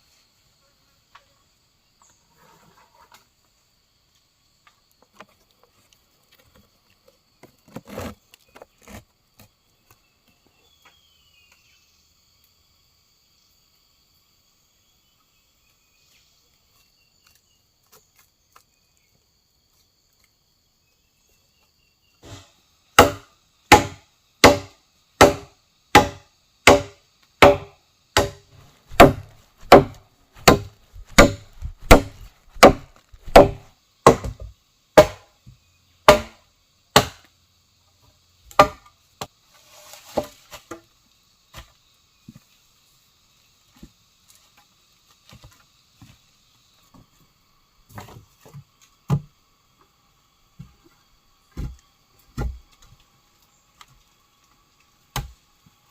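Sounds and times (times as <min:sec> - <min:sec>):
insects chirring: 0:00.0 - 0:55.9
wood being chopped: 0:22.2 - 0:35.3, 0:36.1 - 0:36.4, 0:37.0 - 0:37.2, 0:38.5 - 0:38.9, 0:48.0 - 0:49.3, 0:51.6 - 0:51.8, 0:52.4 - 0:52.6, 0:55.1 - 0:55.4.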